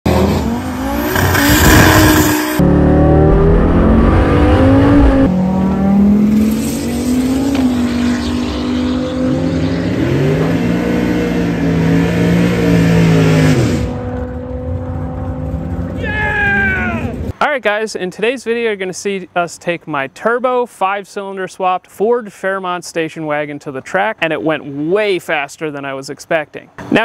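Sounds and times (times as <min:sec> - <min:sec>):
engine running at high rpm: 0:00.1 - 0:16.0.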